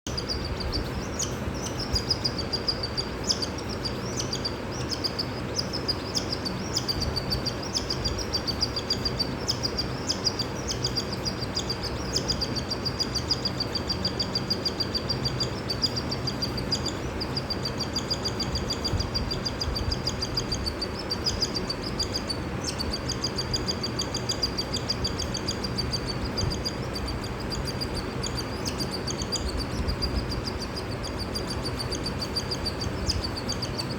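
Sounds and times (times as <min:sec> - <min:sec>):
cockatiel chick begging calls: 0:00.1 - 0:33.9
steady low background noise: 0:00.1 - 0:33.9.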